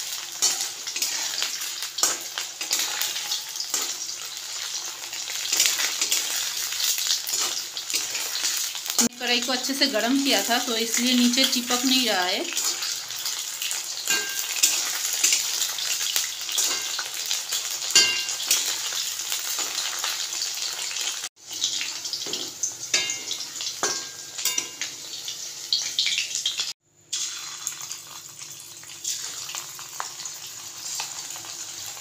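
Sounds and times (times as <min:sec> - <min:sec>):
chicken sizzling in hot oil: 0:00.0 - 0:32.0
metal spatula scraping a pan: 0:00.1 - 0:09.1, 0:10.9 - 0:19.9.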